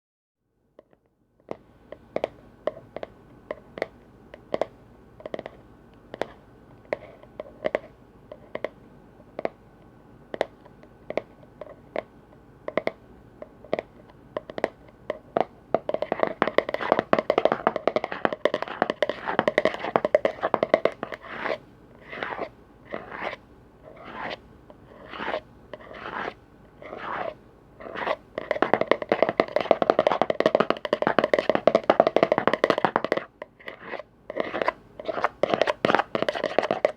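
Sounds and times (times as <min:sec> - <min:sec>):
scratching on lids: 0:15.8 - 0:36.9.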